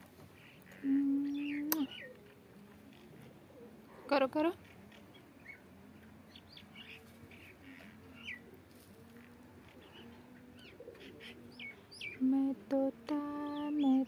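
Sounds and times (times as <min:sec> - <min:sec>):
bird chirps: 0:09.7 - 0:12.3.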